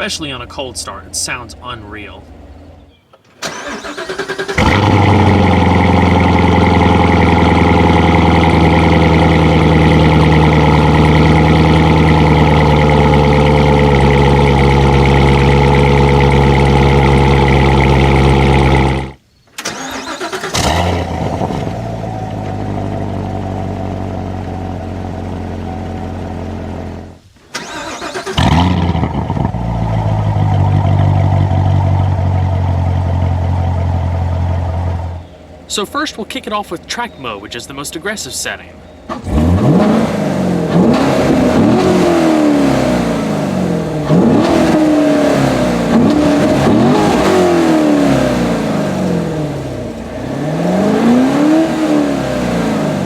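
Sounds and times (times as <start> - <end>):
car engine starting and idling: 0.0 - 53.0.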